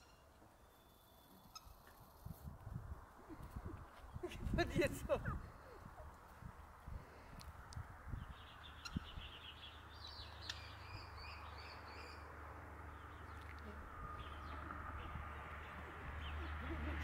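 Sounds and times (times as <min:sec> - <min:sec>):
small birds chirping: 0:08.1 - 0:17.0
low outdoor rumble: 0:12.1 - 0:17.0.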